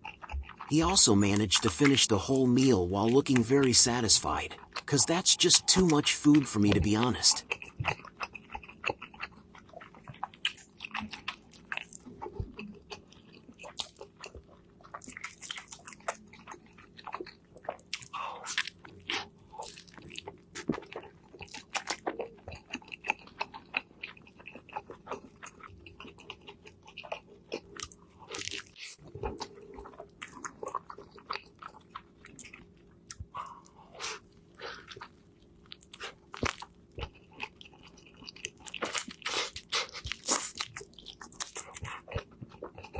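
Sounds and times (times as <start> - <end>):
biting and chewing food: 0.0 - 42.9
sharp food crunches: 17.8 - 29.5, 34.0 - 42.9.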